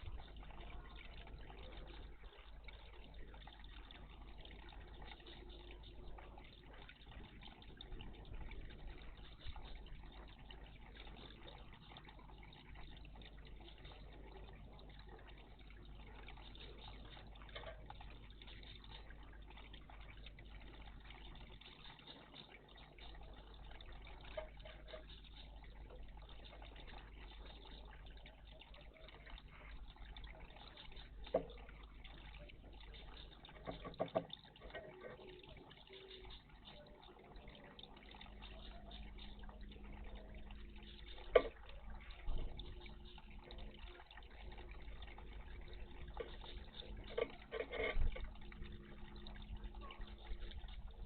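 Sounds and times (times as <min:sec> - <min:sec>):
low hum: 0:00.0 - 0:51.0
water trickling and splashing: 0:00.0 - 0:51.0.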